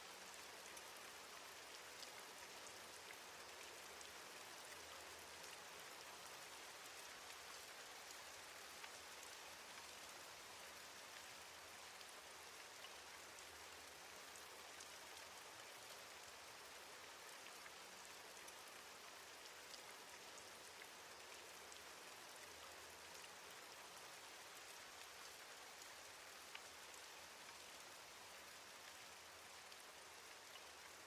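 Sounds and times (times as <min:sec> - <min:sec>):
faint steady rainfall: 0:00.0 - 0:31.0.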